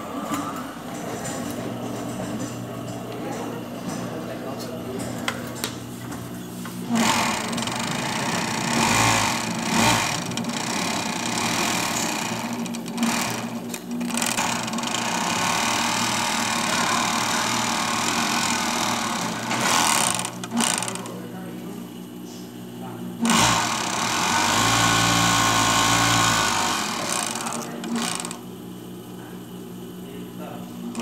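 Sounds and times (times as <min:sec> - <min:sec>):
overlock sewing machine running: 0:06.9 - 0:21.2, 0:23.2 - 0:28.4.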